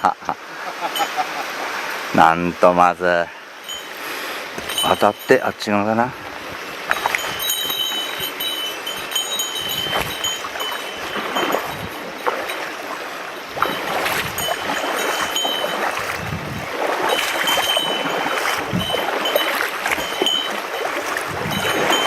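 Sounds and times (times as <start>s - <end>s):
mountain stream running: 0.0s - 22.0s
splashing of wading: 3.6s - 22.0s.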